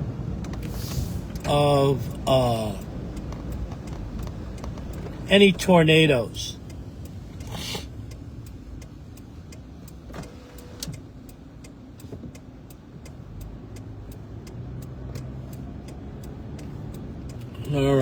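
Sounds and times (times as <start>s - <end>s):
engine and road rumble: 0.0s - 18.0s
light ticks: 0.4s - 1.5s, 2.1s - 18.0s
brief hiss: 0.6s - 1.4s, 7.5s - 7.9s.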